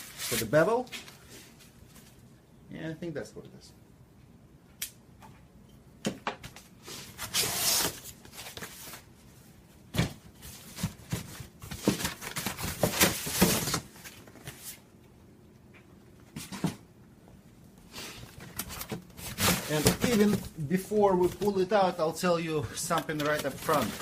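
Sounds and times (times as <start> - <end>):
cardboard and packing rustling: 6.4 - 9.1, 10.0 - 14.9, 18.2 - 22.0, 22.7 - 24.0.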